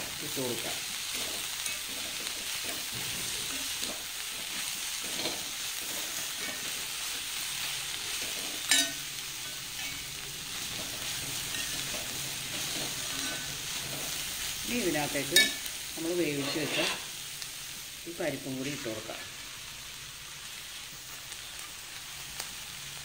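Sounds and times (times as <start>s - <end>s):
greens sizzling in a pan: 0.0s - 23.0s
spoon stirring in a pan: 0.6s - 14.5s, 15.1s - 17.2s.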